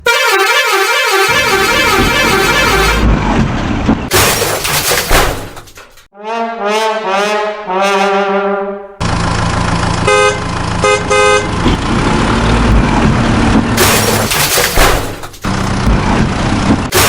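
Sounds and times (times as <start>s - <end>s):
brassy horn-like pulses: 0.0s - 3.1s, 6.2s - 9.0s.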